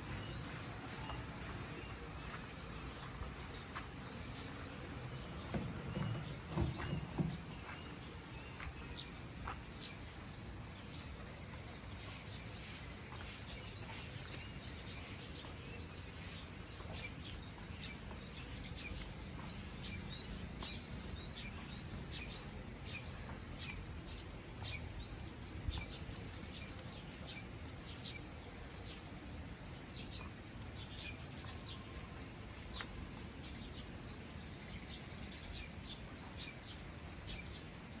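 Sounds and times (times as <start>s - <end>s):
birds chirping: 0.0s - 38.0s.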